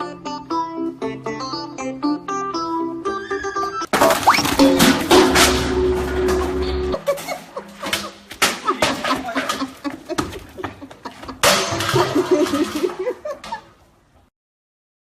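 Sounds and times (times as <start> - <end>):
loud crash: 3.9 - 7.0
knocks and clattering impacts: 3.9 - 13.6
voices and laughter: 7.0 - 11.4.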